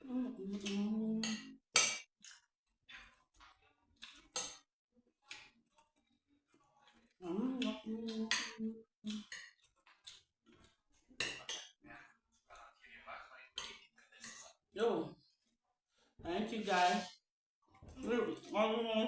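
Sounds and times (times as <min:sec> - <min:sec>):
wet mouth eating sounds: 0:02.1 - 0:12.7
person humming mm: 0:07.2 - 0:08.8.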